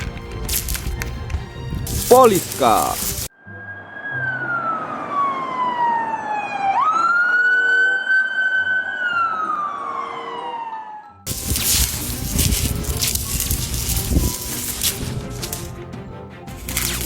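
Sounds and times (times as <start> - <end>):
police siren wailing: 3.5 - 11.3.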